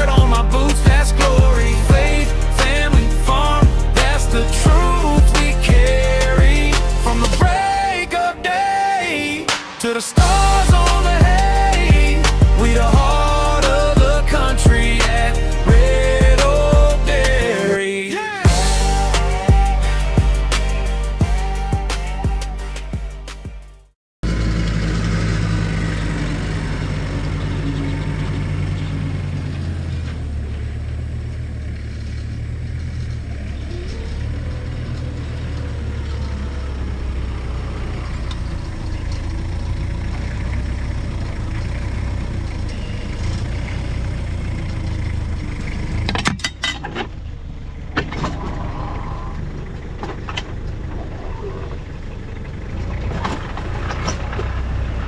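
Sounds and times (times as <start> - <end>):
heavy farm machinery engine: 0.0 - 17.6, 24.3 - 55.0.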